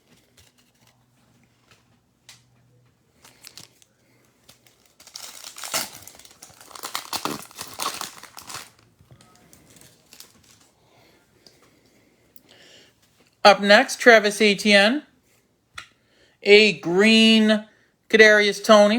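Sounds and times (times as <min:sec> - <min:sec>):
wrapper tearing and crinkling: 0:03.2 - 0:10.7.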